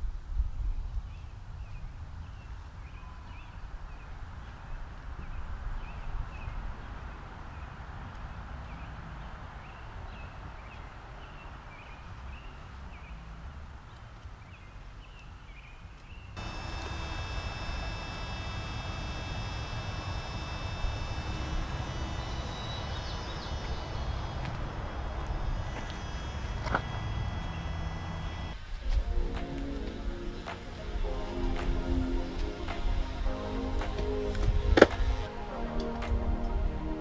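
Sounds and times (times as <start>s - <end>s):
small bird chirping: 16.1s - 28.6s
steady low rumble: 16.4s - 37.0s
steady multi-tone hum: 16.4s - 37.0s.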